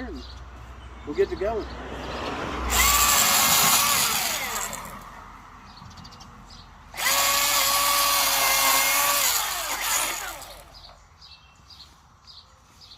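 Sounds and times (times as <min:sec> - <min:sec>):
electric chainsaw whine: 0:02.7 - 0:05.0, 0:07.0 - 0:11.0.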